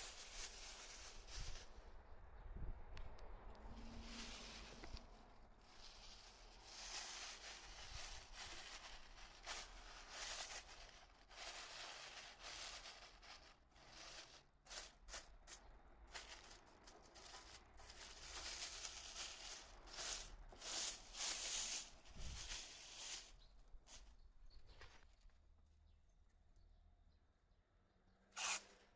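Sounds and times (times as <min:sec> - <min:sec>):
crinkling masking material: 0:00.0 - 0:02.0, 0:03.5 - 0:25.4, 0:28.4 - 0:28.9
masking tape tearing off roll: 0:28.4 - 0:28.8.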